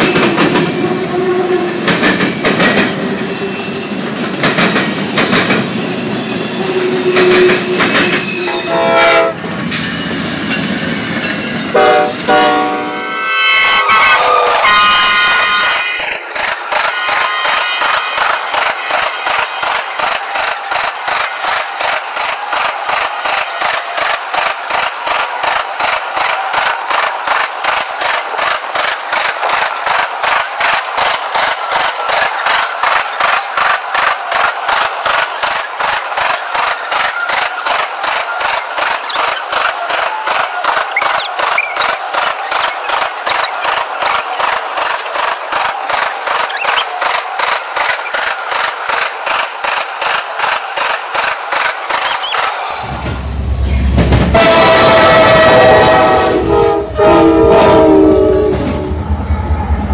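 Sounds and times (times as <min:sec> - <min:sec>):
train wheels clattering on rails: 0:00.0 - 0:01.1, 0:01.7 - 0:12.4, 0:14.1 - 0:56.2
high wheel squeal: 0:05.6 - 0:08.9, 0:35.4 - 0:44.3, 0:45.2 - 0:52.9.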